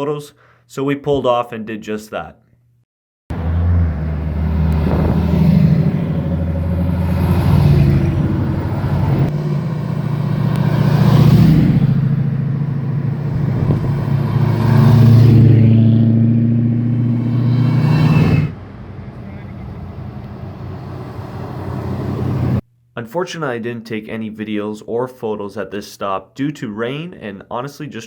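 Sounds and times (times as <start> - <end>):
car engine accelerating: 3.3 - 22.6.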